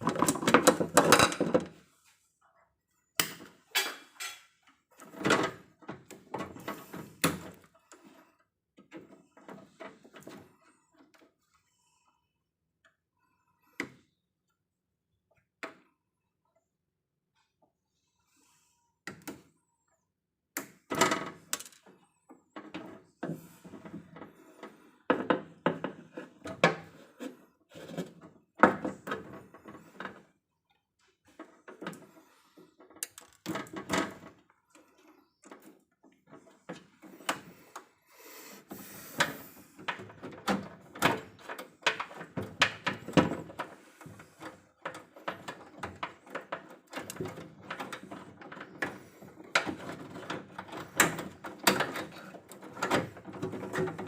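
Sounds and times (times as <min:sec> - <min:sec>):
knocks and clatter of hand work: 0:00.0 - 0:01.8, 0:03.2 - 0:07.7, 0:20.6 - 0:30.3, 0:31.2 - 0:37.8, 0:38.7 - 0:54.0.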